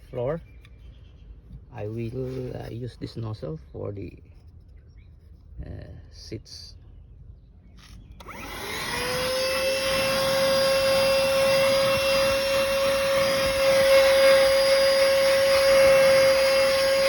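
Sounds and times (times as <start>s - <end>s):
handheld vacuum cleaner motor whine: 8.2s - 17.0s.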